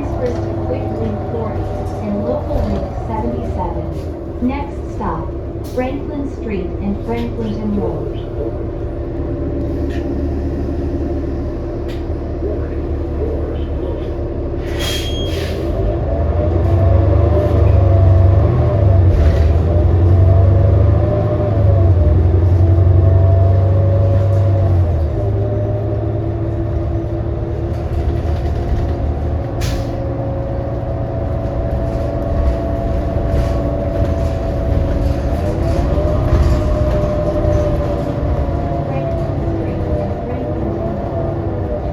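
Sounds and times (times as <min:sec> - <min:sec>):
bus engine drone: 0:00.0 - 0:41.9.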